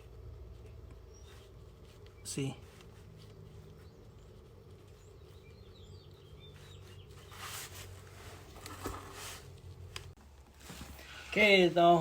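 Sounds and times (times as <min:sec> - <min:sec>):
low steady hum: 0:00.0 - 0:12.0
faint bird chirps: 0:00.8 - 0:07.6
rustling swishes: 0:06.6 - 0:09.9.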